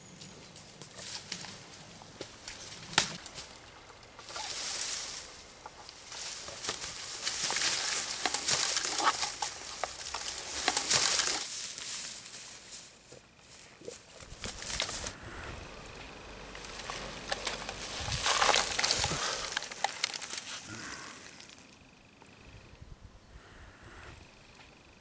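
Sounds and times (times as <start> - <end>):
brush rustling and snapping: 0.2 - 15.2, 16.0 - 21.8
footsteps through long grass: 4.2 - 15.2, 16.6 - 21.6.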